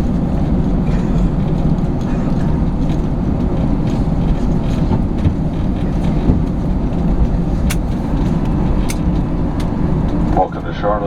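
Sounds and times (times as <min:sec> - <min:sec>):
jet cabin engine rumble: 0:00.0 - 0:11.0.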